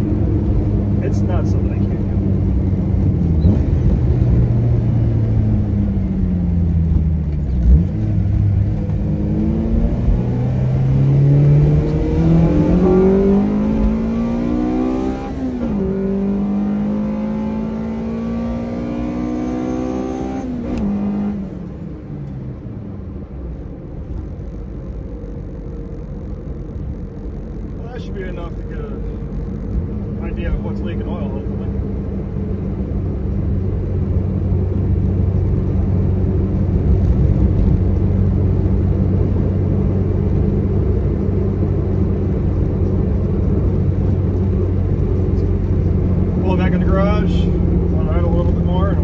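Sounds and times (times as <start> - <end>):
car engine revving through gears: 0.4 - 21.7.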